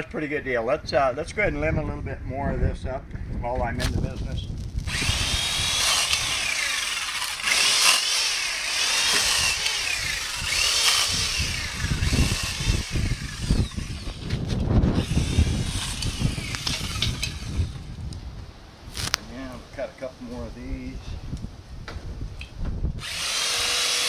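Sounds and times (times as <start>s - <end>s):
branches knocking and rustling: 3.6s - 12.3s, 18.9s - 19.2s
electric chainsaw cutting limbs: 3.8s - 18.0s, 18.9s - 19.2s, 23.0s - 24.0s.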